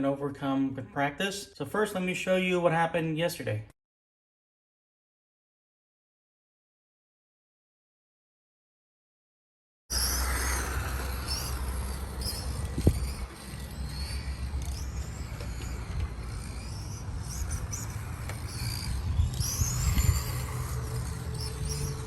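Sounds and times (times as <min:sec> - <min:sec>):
electric toy car motor whine: 0:09.9 - 0:22.0.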